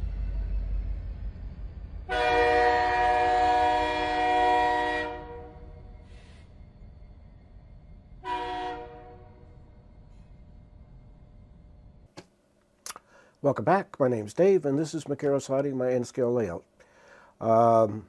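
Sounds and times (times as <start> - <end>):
low rumble of a train: 0.0 - 12.5
train horn blasts: 2.0 - 6.1, 8.2 - 9.7.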